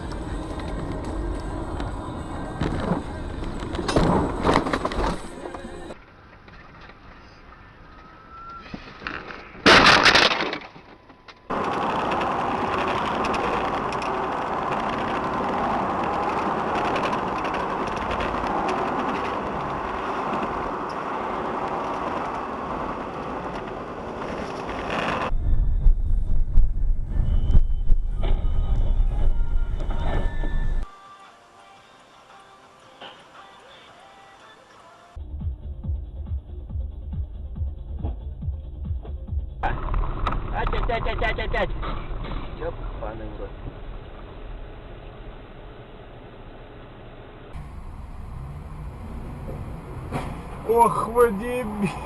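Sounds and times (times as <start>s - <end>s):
car collision crash: 8.9s - 11.0s, 49.4s - 50.6s
heavy low rumble: 11.5s - 30.9s
steady rushing noise: 11.5s - 30.9s.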